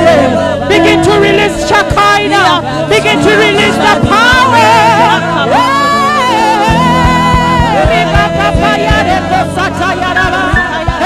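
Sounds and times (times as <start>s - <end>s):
steady drum beat: 3.6s - 11.0s.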